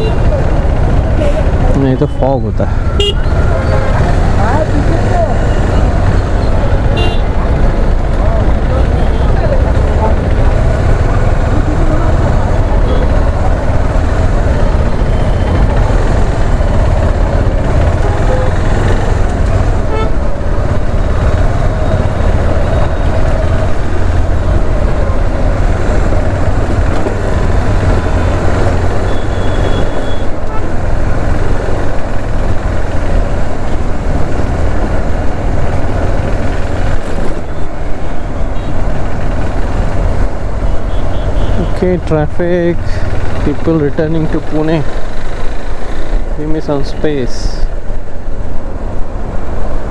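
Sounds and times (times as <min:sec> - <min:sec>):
motorcycle engine: 0:00.0 - 0:49.9
surrounding traffic: 0:00.0 - 0:49.9.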